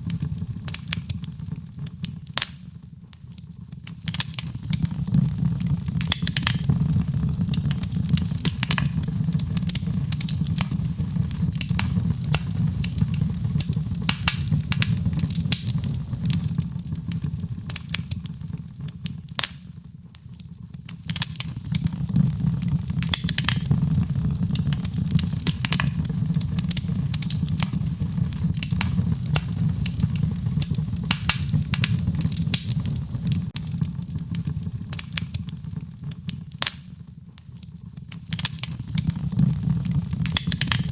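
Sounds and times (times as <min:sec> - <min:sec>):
fire crackling and popping: 0:00.0 - 0:40.9
steady low rumble: 0:23.6 - 0:33.5.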